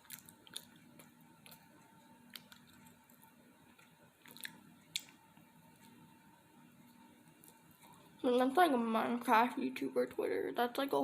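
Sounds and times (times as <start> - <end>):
chewing with wet mouth clicks: 0.0 - 5.2
faint steady hum: 0.0 - 11.0.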